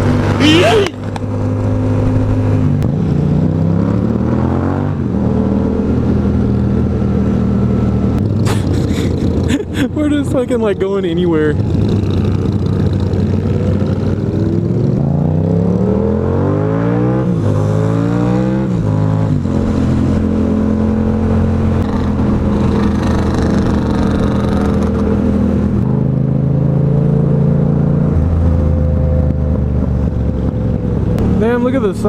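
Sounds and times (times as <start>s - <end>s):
motorcycle engine accelerating: 11.6s - 32.0s.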